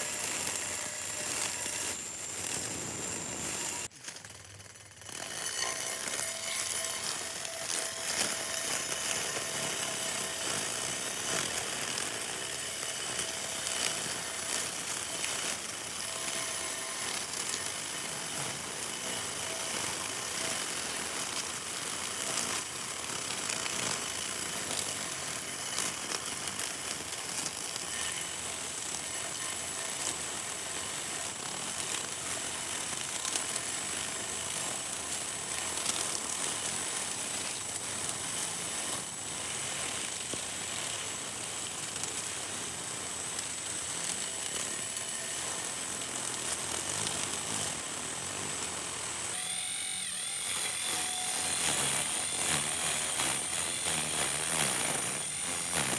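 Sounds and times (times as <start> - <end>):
high steady whine: 0.0 - 4.0
small motor rattling whir: 0.0 - 55.9.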